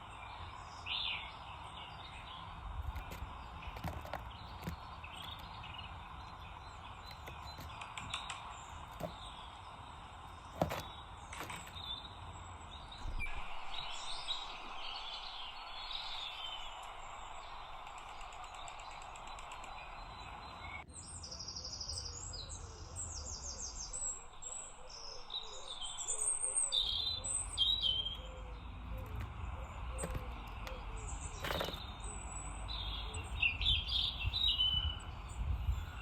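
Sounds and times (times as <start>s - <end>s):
songbirds chirping and singing: 0.0s - 36.0s.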